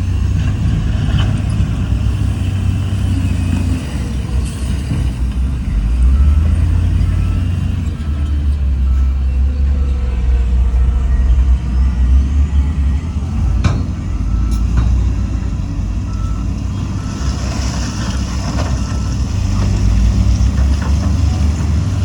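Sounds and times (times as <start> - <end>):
heavy diesel machinery rumbling: 0.0 - 22.0
reversing alarm beeping: 3.0 - 17.4.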